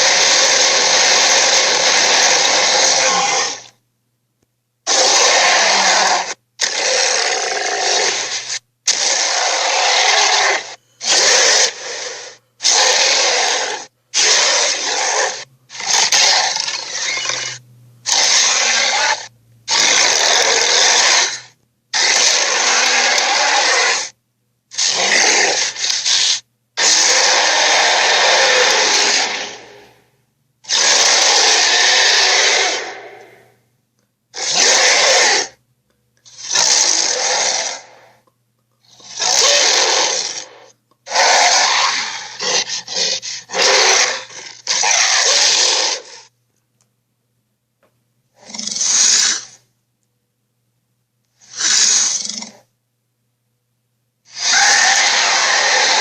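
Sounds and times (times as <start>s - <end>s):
raspy dinosaur roars: 0.0s - 3.7s, 4.9s - 24.2s, 24.8s - 30.0s, 30.7s - 33.6s, 34.4s - 35.6s, 36.3s - 38.2s, 39.0s - 46.3s, 54.3s - 56.0s
faint low hum: 0.0s - 6.7s, 7.4s - 22.0s, 24.1s - 24.8s, 26.4s - 26.8s, 27.8s - 30.7s, 32.7s - 34.4s, 37.8s - 39.2s, 46.2s - 48.4s, 49.5s - 51.4s, 52.5s - 54.3s.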